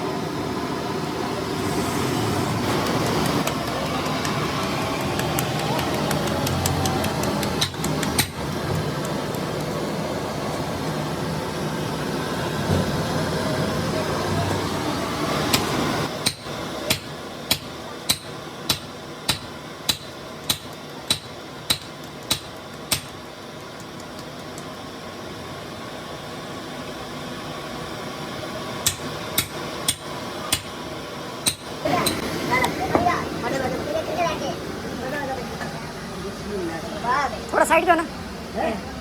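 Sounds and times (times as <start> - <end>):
steady mechanical rumble: 0.0 - 39.0
hammer striking metal: 15.5 - 23.2, 31.4 - 32.2.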